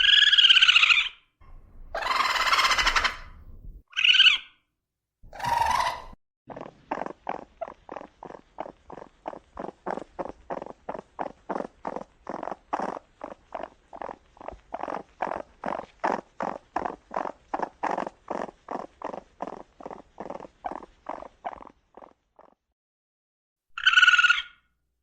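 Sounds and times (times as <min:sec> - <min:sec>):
raccoon pulsed calls: 0:00.0 - 0:04.5, 0:05.3 - 0:06.2, 0:23.8 - 0:24.6.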